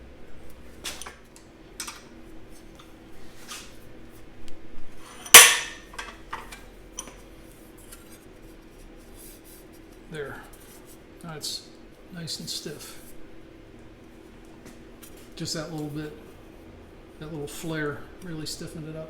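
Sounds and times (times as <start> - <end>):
loud sharp metal bang: 5.4 - 5.9.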